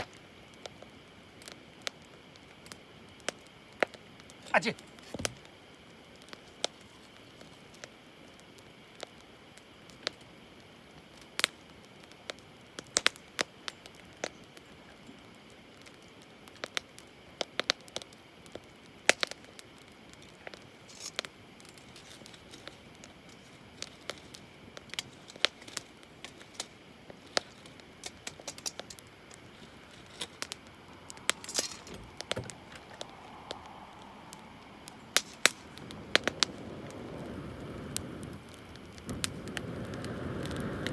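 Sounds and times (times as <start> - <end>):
campfire crackling: 0.0 - 40.9
rustle: 0.0 - 40.9.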